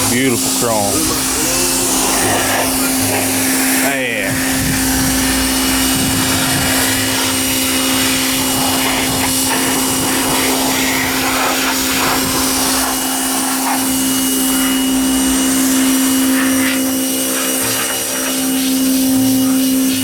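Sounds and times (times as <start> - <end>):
pressure washer motor hum: 0.0 - 20.0
spray hissing: 0.0 - 20.0.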